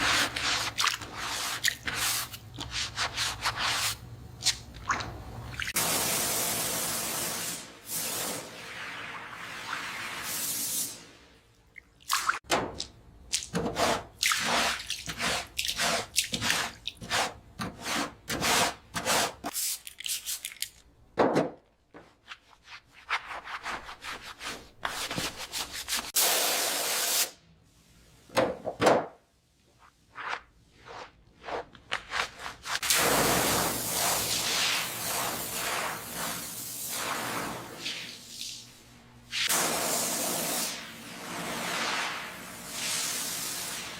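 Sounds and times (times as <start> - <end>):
rubbing strokes on a surface: 0.0 - 4.0.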